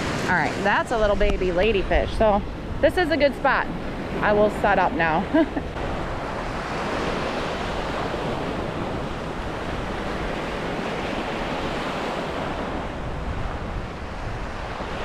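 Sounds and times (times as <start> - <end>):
surf breaking on beach: 0.0 - 15.0
wind rumbling on microphone: 0.0 - 15.0.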